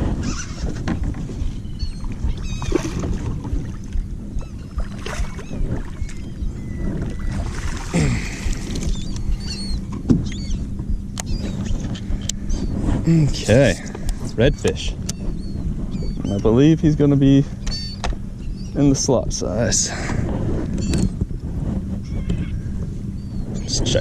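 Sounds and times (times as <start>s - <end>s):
water sloshing and splashing: 0.0s - 10.4s
high chirping bird calls: 1.6s - 2.8s, 8.8s - 12.8s, 14.5s - 16.7s, 17.6s - 19.0s, 22.0s - 23.8s.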